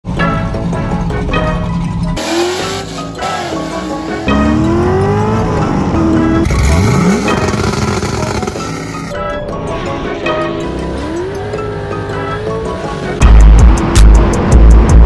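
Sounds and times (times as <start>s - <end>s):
music: 0.0s - 15.0s
car engines revving: 1.8s - 15.0s.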